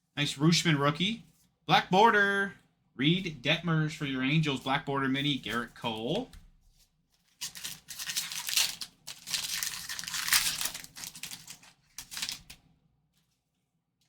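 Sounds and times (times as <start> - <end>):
foil wrapper tearing and crinkling: 7.3 - 12.6.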